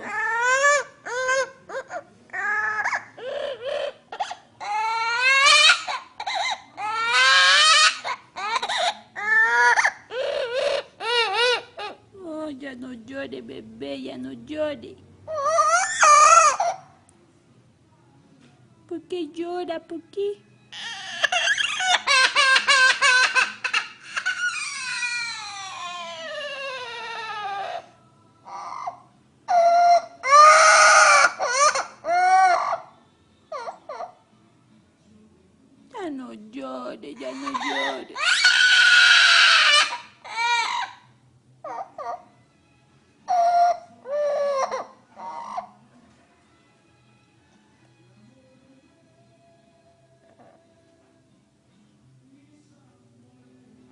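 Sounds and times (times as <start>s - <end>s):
parrot mimicking baby crying: 0.0s - 12.2s, 15.3s - 17.0s, 20.7s - 34.3s, 37.1s - 42.4s, 43.2s - 45.9s.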